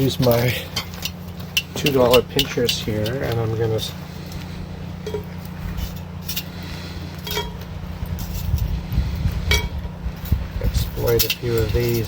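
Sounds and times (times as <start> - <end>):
metal tongs clinking on cast iron: 0.0 - 3.6, 7.2 - 7.7, 11.0 - 12.0
low hum: 0.0 - 12.0.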